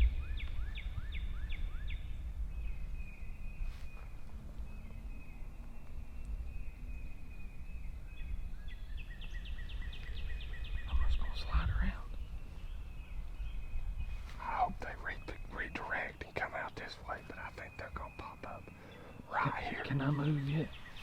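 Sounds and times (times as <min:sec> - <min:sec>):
songbird singing: 0:00.0 - 0:21.0
wind rumble: 0:00.0 - 0:21.0.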